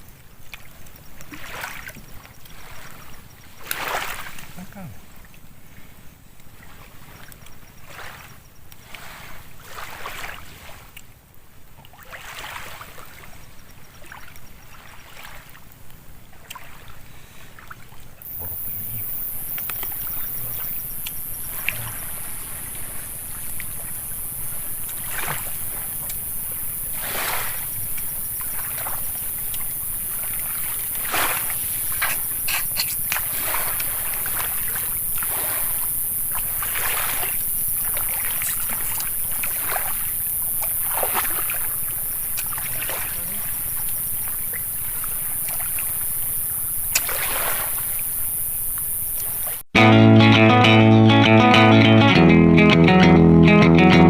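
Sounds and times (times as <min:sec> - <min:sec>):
water sloshing around boat: 0:11.8 - 0:18.2, 0:19.8 - 0:46.0
steady high-pitched hiss: 0:12.9 - 0:54.0.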